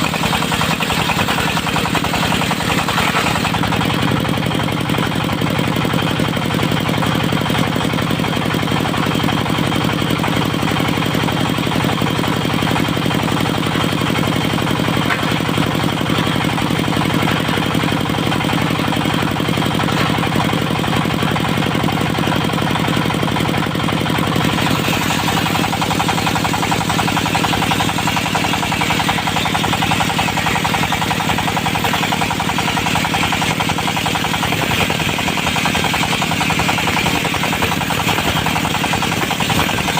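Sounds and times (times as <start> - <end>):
diesel engine running: 0.0 - 39.9
sawmill knocking: 0.0 - 39.9.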